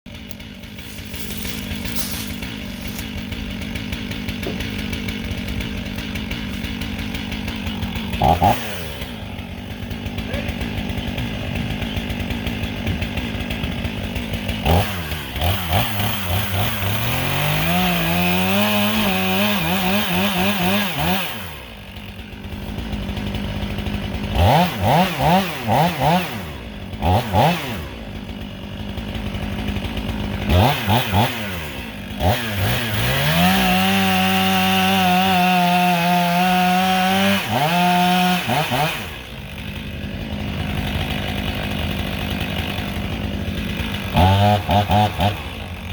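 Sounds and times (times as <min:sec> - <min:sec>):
chainsaw engine revving: 0:00.1 - 0:45.9.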